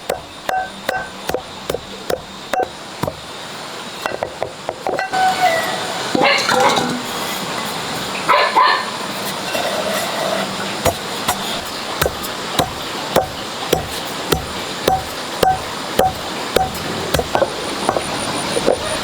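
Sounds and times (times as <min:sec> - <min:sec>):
rhythmic pounding with ring: 0:00.0 - 0:03.3, 0:10.8 - 0:19.0.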